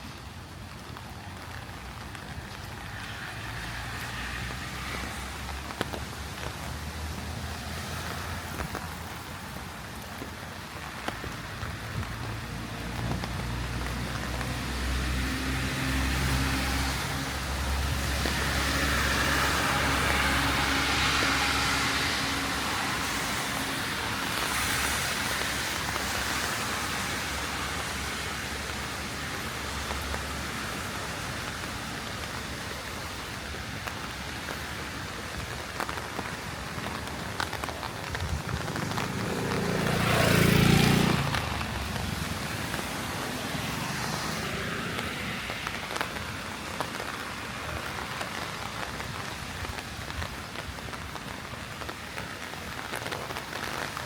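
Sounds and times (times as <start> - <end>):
heavy rain on street: 0.0 - 54.0
raindrops ticking: 0.0 - 54.0
vehicle passing on wet road: 0.0 - 54.0.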